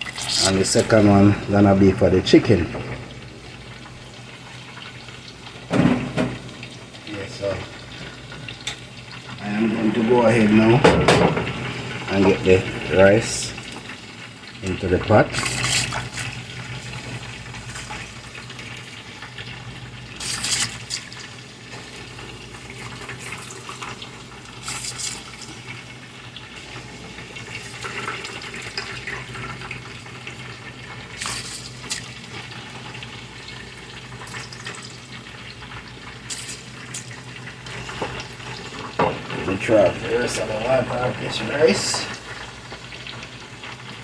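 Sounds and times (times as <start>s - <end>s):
tap water running into sink: 0.0s - 44.0s
sharp clatters or splashes: 15.3s - 16.4s, 20.2s - 21.3s, 31.1s - 32.2s.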